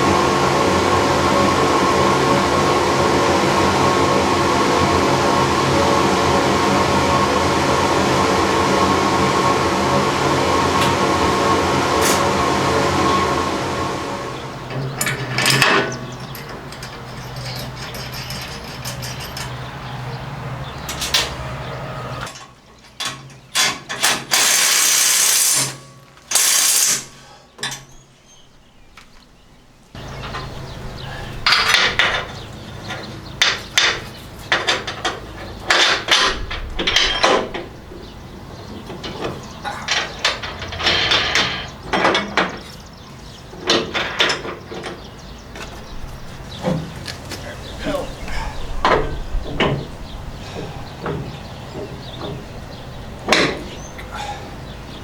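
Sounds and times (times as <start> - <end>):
low hum: 0.0 - 22.3
metal clinks: 15.0 - 19.7
ratchet clicking: 23.6 - 27.1.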